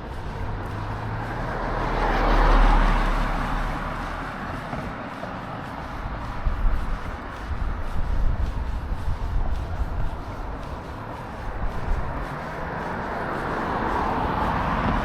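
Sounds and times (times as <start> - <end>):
motor vehicle driving past: 0.0 - 15.0.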